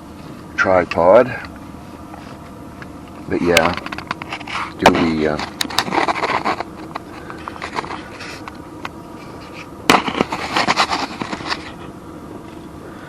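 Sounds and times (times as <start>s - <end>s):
tripod clicks and rattles: 3.6s - 4.5s.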